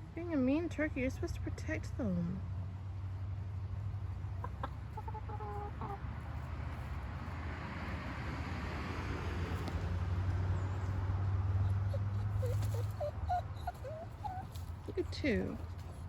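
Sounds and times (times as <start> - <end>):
chickens clucking: 4.0 - 7.0, 11.6 - 16.0.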